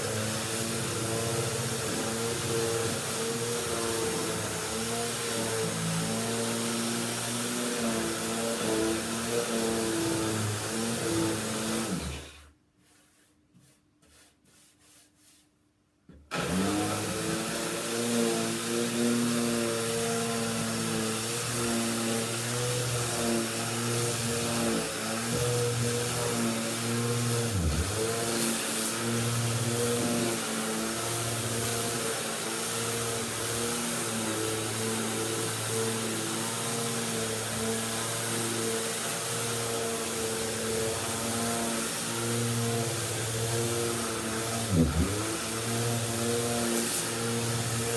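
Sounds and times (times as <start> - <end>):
vacuum cleaner running: 0.0 - 12.5, 16.3 - 47.9
electric motor whining: 27.0 - 28.3, 42.4 - 46.6.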